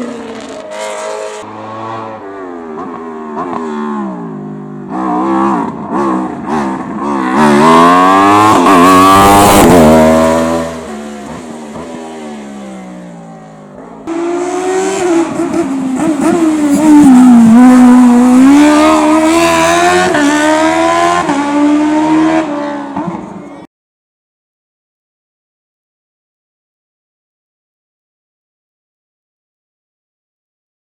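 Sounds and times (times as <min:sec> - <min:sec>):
race car engine revving: 0:00.0 - 0:23.7.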